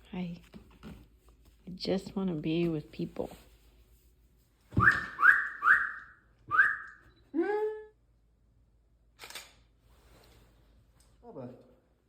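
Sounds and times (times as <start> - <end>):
rising squeal of dog toy: 4.8 - 7.0.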